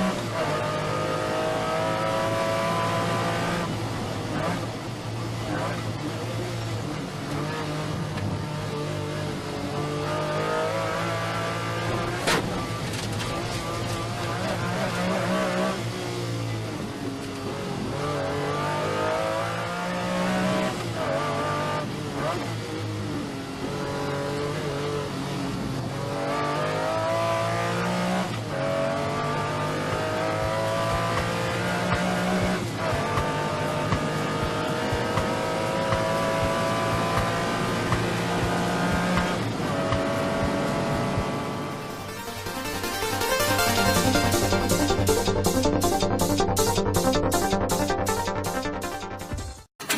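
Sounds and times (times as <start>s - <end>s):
car engine accelerating through gears: 0.0s - 48.6s.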